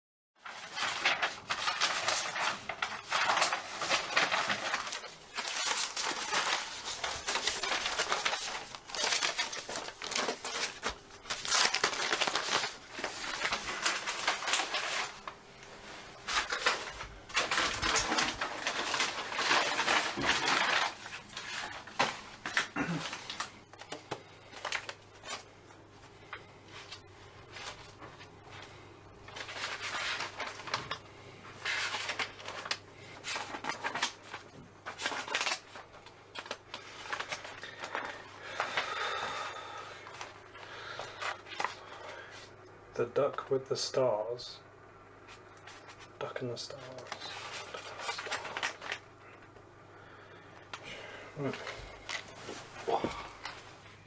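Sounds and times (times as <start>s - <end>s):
rustling and crumpling: 0.4s - 42.6s, 45.2s - 49.6s, 50.7s - 54.0s.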